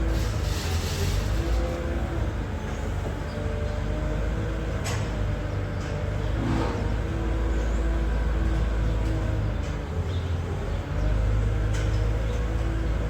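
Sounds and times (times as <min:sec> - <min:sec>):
tractor engine rumbling: 0:00.0 - 0:03.6.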